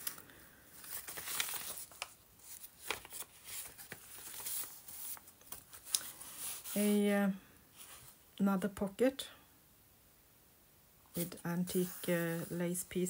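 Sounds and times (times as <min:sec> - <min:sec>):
paper pages rustling: 0:00.0 - 0:06.8, 0:11.1 - 0:12.6.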